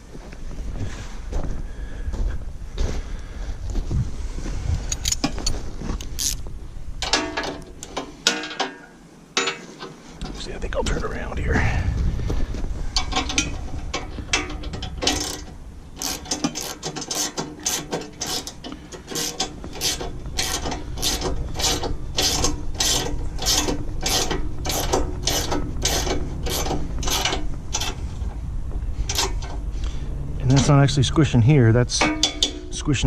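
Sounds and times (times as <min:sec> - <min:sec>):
ratchet wrench clicking: 0:06.0 - 0:06.4, 0:14.3 - 0:28.0, 0:29.1 - 0:29.6.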